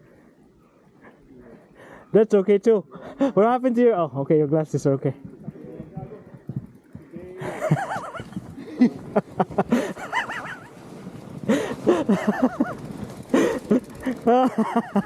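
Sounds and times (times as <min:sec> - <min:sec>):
people laughing and hooting: 0:07.4 - 0:10.8, 0:11.5 - 0:15.0.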